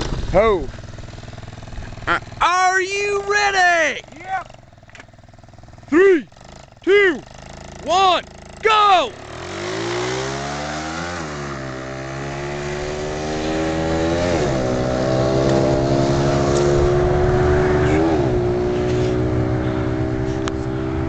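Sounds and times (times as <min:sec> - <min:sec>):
mini bike engine at full throttle: 0:00.0 - 0:21.0.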